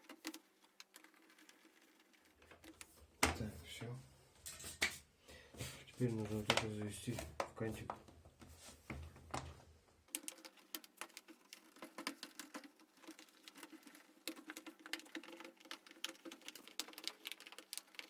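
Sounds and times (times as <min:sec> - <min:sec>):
hands clicking and scratching parts: 0:00.0 - 0:03.0, 0:10.1 - 0:18.0.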